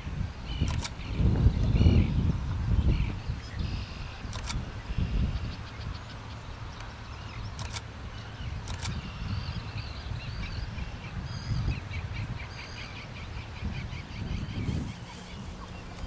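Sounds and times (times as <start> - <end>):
small birds chirping and twittering: 0.0 - 16.0
sharp clicks: 0.6 - 1.0, 4.3 - 4.6, 7.6 - 7.9, 8.6 - 9.0.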